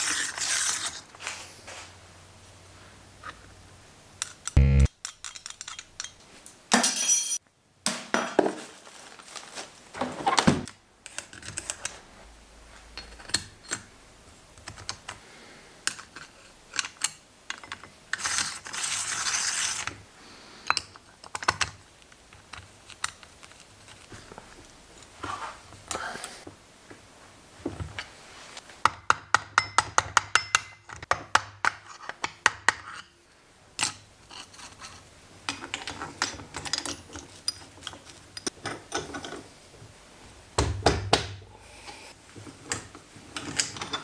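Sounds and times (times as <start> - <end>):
metal tools clinking: 6.8 - 7.4.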